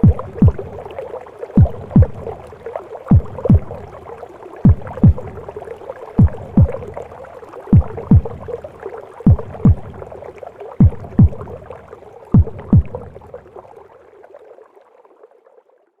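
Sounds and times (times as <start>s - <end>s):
womb noise: 0.0s - 0.8s, 1.6s - 2.4s, 3.1s - 3.9s, 4.6s - 5.5s, 6.2s - 7.0s, 7.7s - 8.6s, 9.2s - 10.1s, 10.8s - 11.7s, 12.3s - 13.2s
heartbeat double thumps: 0.0s - 0.9s, 1.6s - 2.5s, 3.1s - 4.0s, 4.6s - 5.6s, 6.2s - 7.1s, 7.7s - 10.2s, 10.8s - 13.3s.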